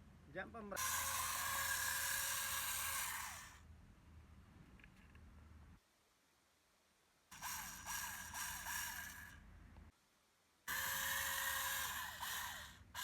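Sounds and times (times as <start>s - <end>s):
small electric motor whining: 0.8s - 3.6s, 7.3s - 9.4s, 10.7s - 13.0s.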